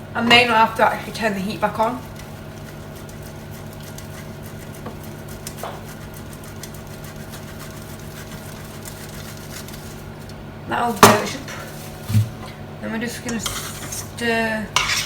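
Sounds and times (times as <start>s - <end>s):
steady low hum: 0.0s - 15.0s
cheese grating: 1.3s - 10.4s, 13.3s - 14.2s, 14.8s - 15.0s.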